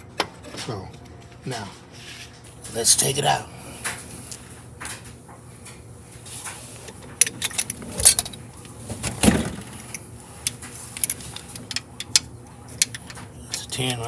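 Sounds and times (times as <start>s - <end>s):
metal tools clinking: 7.2s - 8.8s.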